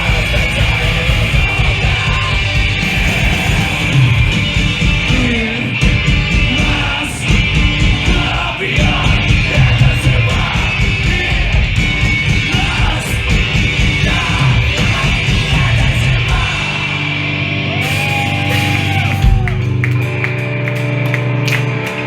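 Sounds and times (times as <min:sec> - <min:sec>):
held guitar chords ringing: 0:00.0 - 0:22.0
punk band playing: 0:00.0 - 0:22.0.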